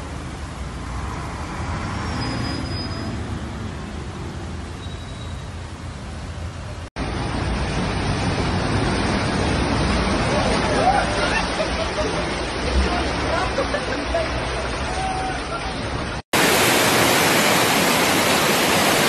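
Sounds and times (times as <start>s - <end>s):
traffic on flooded street: 0.0s - 19.0s
heavy rain: 6.9s - 19.0s.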